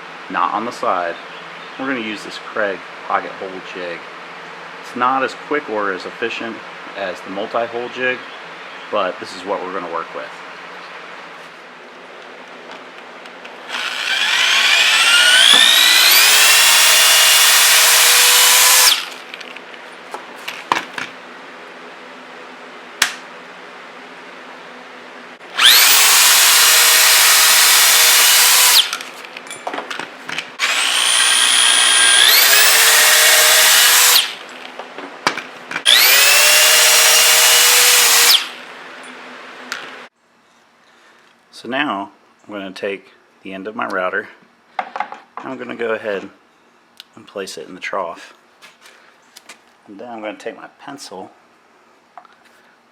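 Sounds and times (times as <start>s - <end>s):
power drill whining: 13.7s - 19.2s, 25.5s - 29.1s, 30.6s - 34.4s, 35.8s - 38.6s.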